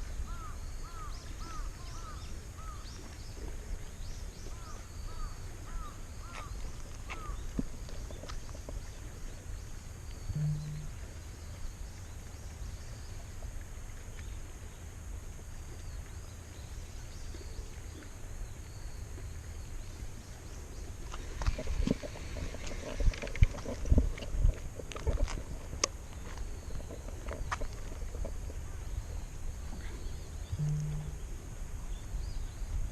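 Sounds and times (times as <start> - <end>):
low outdoor rumble: 1.8 - 18.7, 19.4 - 32.9
irregular knocks and thumps: 10.4 - 11.0.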